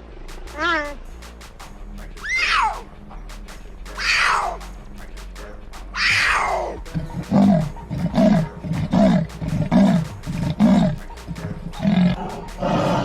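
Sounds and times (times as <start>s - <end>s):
animal falling cry: 2.2s - 2.8s, 4.0s - 4.6s, 6.0s - 6.8s
animal deep grunts: 6.9s - 11.0s, 11.7s - 13.0s.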